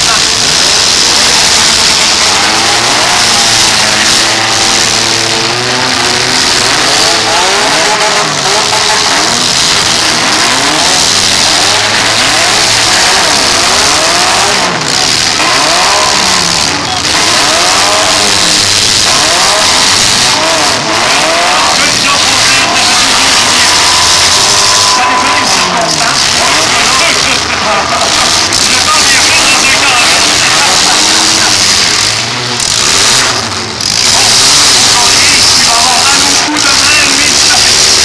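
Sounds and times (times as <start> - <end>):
car engines revving hard: 0.0 - 38.0
cars hitting each other: 0.0 - 38.0.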